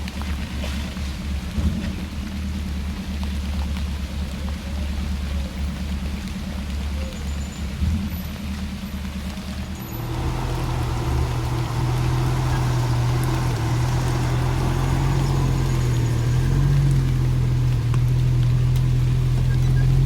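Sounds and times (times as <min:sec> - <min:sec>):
vehicle engine droning: 0:00.0 - 0:20.0.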